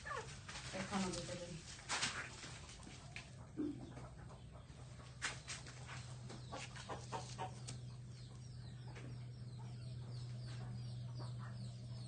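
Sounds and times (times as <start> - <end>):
chickens clucking: 0.0 - 1.3, 2.0 - 12.0.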